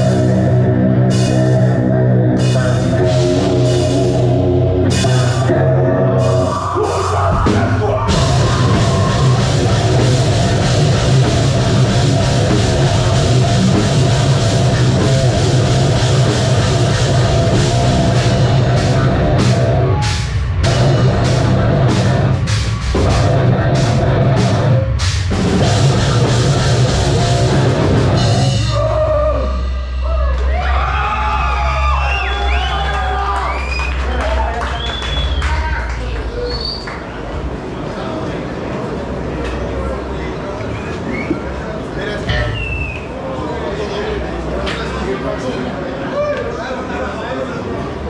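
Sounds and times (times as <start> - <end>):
drum kit: 0.0 - 32.0
distorted guitars: 0.0 - 32.6
bass guitar: 0.0 - 36.4.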